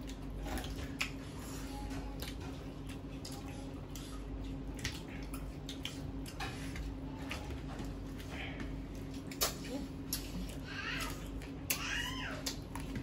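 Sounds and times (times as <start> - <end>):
wet chewing and lip-smacking: 0.0 - 8.0, 8.9 - 13.0
steady low hum: 0.0 - 13.0.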